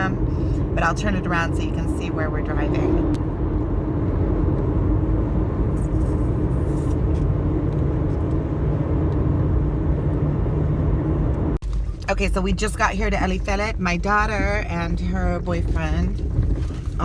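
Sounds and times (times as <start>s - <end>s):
road and engine rumble in car: 0.0s - 17.0s.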